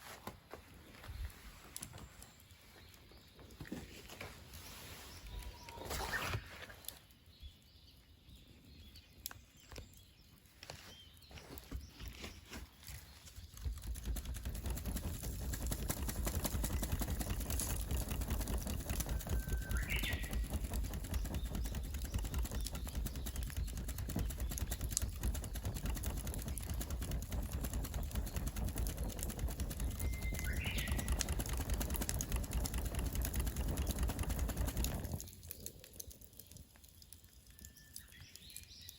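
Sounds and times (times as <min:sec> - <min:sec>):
bird chirping: 0:01.9 - 0:38.9
wood fire crackling: 0:09.2 - 0:38.9.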